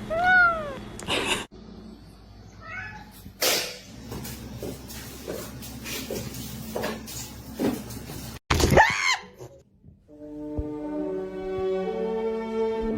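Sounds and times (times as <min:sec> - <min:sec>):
cat meowing: 0:00.1 - 0:00.8, 0:02.6 - 0:03.2.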